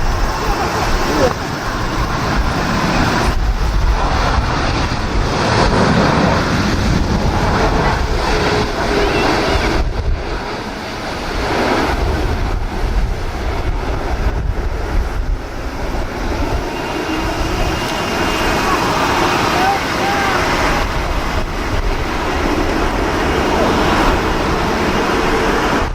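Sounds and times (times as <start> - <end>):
steady low rumble: 0.0 - 25.9
wind buffeting microphone: 0.0 - 25.9.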